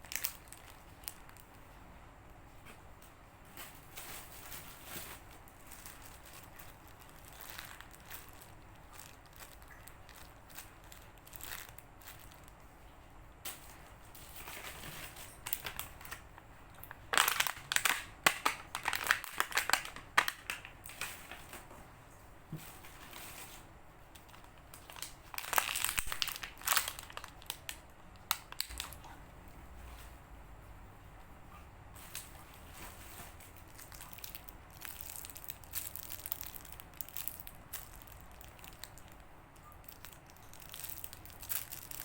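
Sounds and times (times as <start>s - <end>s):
squishy toys crinkling and crunching: 0.0s - 1.6s, 3.7s - 12.6s, 14.4s - 21.6s, 24.2s - 29.0s, 33.0s - 42.0s.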